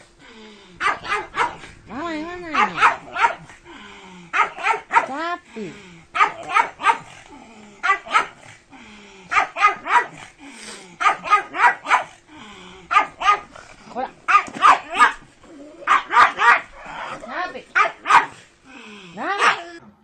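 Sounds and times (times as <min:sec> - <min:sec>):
dog barking: 0:00.8 - 0:01.7, 0:02.5 - 0:03.5, 0:04.3 - 0:05.2, 0:06.2 - 0:07.2, 0:07.8 - 0:08.4, 0:09.3 - 0:10.2, 0:11.0 - 0:12.2, 0:12.9 - 0:13.5, 0:14.3 - 0:15.2, 0:15.9 - 0:17.2, 0:17.8 - 0:18.4, 0:19.2 - 0:19.8.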